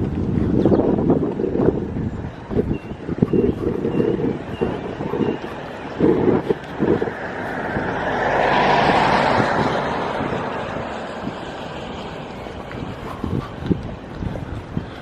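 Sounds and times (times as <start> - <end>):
car driving past: 5.6 - 12.9.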